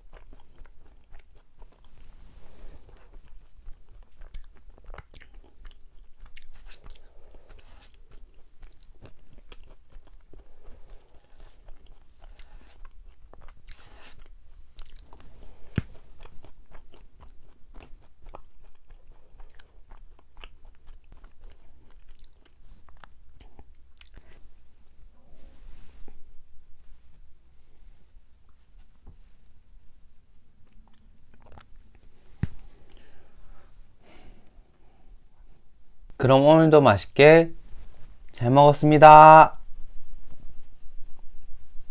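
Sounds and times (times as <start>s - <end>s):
chewing and mouth clicks: 0.0s - 2.2s, 2.8s - 24.4s, 30.6s - 33.1s.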